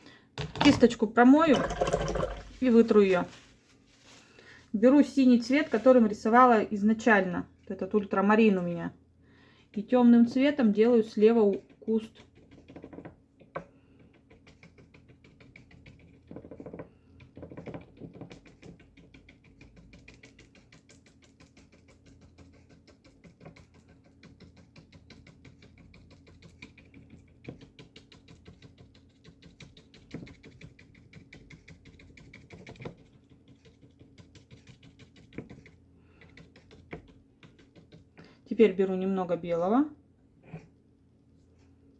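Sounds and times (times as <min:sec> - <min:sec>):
brush tapping on paper: 0:11.3 - 0:38.4.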